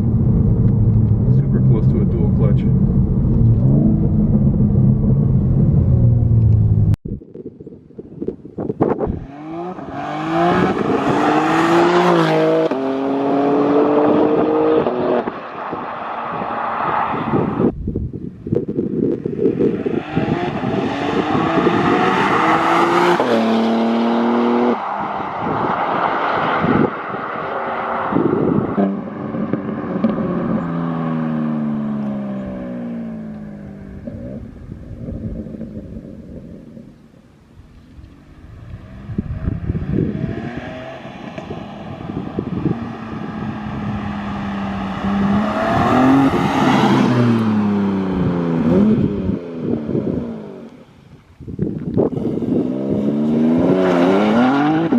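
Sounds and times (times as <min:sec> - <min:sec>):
car engine accelerating with upshifts: 0:00.0 - 0:07.0, 0:08.8 - 0:17.8, 0:18.6 - 0:54.9
car passing close: 0:09.1 - 0:17.7, 0:19.4 - 0:36.0, 0:38.1 - 0:50.8.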